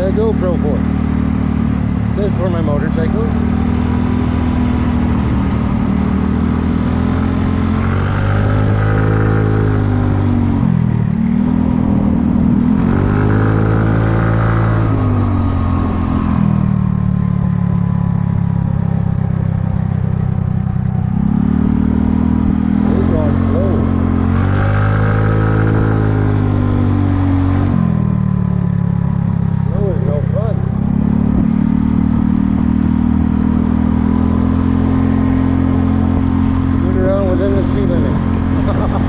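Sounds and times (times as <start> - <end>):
scooter engine revving: 0.0 - 39.0.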